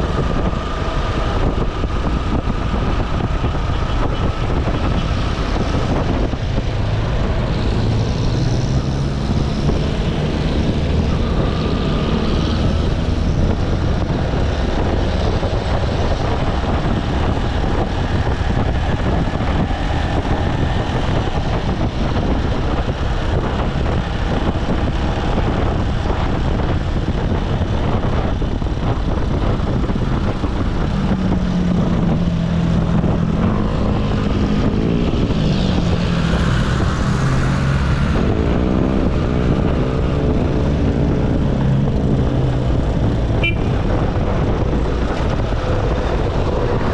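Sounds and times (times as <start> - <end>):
wind and road noise: 0.0 - 46.9
motorcycle engine running: 37.3 - 46.9.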